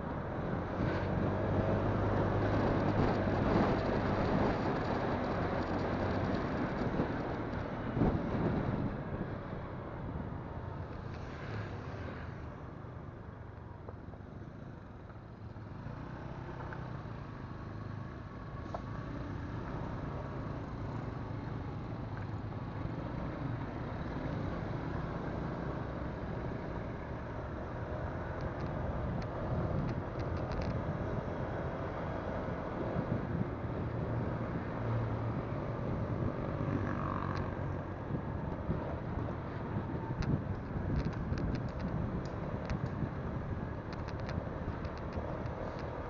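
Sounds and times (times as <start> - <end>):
road noise: 0.0 - 46.0.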